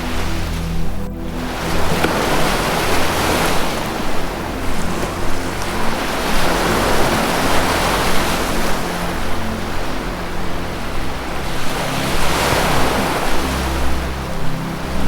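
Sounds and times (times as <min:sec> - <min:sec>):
faint low music drone: 0:00.0 - 0:15.0
ocean surf washing in: 0:00.0 - 0:15.0.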